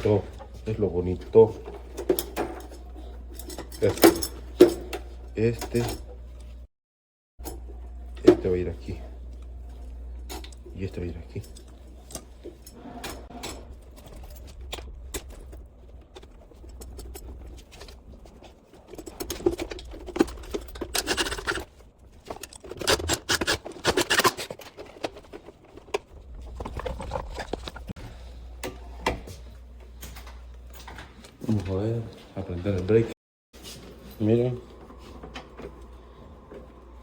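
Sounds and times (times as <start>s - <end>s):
steady low hum: 7.4s - 33.2s
wire and tool clicks and scrapes: 11.3s - 28.0s.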